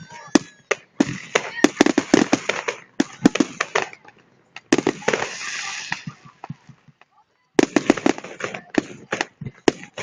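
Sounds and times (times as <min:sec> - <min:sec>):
fireworks bangs and crackling pops: 0:00.0 - 0:10.0.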